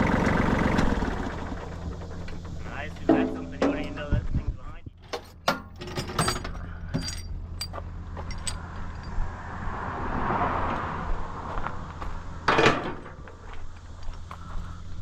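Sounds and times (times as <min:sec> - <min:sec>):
engine idling: 0:00.0 - 0:09.2, 0:11.5 - 0:15.0
loud metallic clank: 0:02.0 - 0:04.1, 0:12.5 - 0:13.2
metallic clinks: 0:05.2 - 0:09.2
rush of noise: 0:08.8 - 0:12.7.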